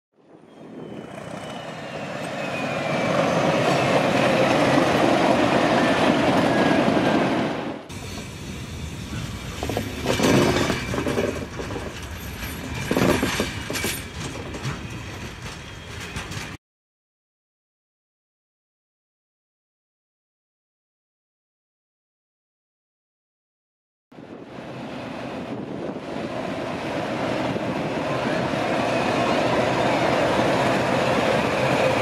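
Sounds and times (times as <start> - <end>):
train passing: 0.2 - 16.6, 24.2 - 32.0
train wheel clatter: 7.9 - 16.6.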